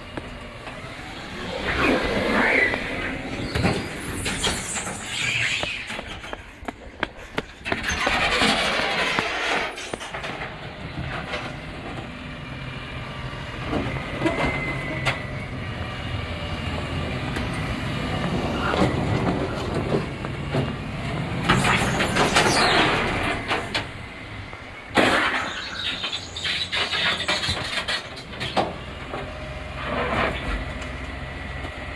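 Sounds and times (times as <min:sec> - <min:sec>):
surges of machine noise: 0:00.0 - 0:31.5
truck engine hum: 0:00.0 - 0:31.9
high squeal: 0:00.6 - 0:10.3, 0:21.2 - 0:28.6.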